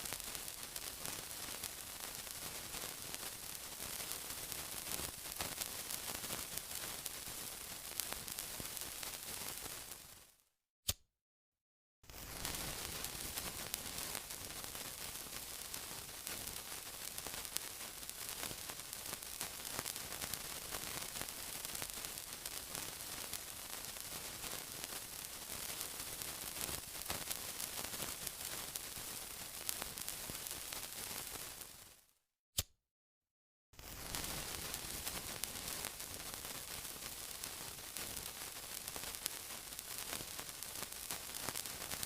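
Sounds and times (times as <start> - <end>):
steady sizzling: 33.8 - 42.0.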